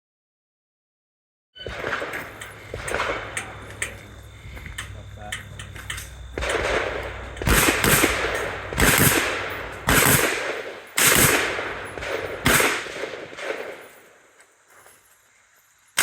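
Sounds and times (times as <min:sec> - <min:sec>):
rifle shots echoing: 0:01.6 - 0:14.3.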